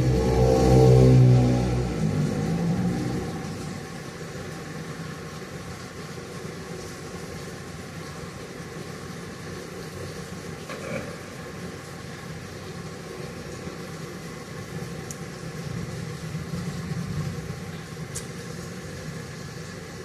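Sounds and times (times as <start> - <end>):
vehicle engine passing by: 0.0 - 4.0
rain hissing: 0.0 - 20.0.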